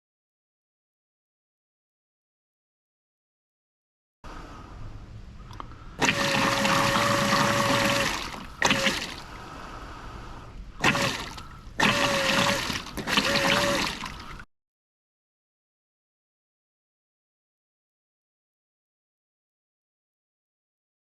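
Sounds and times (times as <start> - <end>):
pump motor whine: 5.5 - 9.6, 10.8 - 14.5
water spraying and splashing: 6.0 - 9.4, 10.8 - 14.4.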